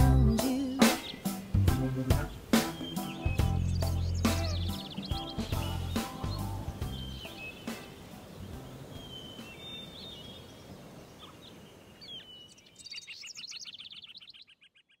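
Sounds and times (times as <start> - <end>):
bird chirps: 0.0 - 15.0
bird chattering high notes: 0.3 - 7.9.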